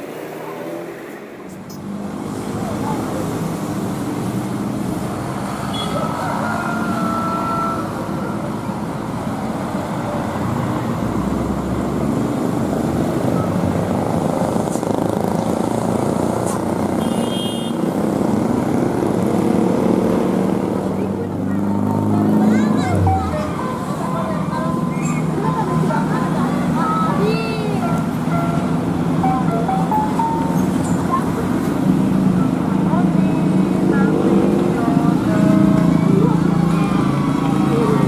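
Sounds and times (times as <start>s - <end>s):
road traffic noise: 0.0s - 38.0s
vehicle engines running: 0.0s - 38.0s.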